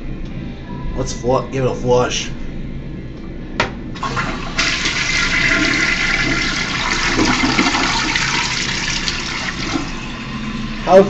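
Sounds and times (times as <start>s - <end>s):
toilet flushing: 4.0s - 11.0s.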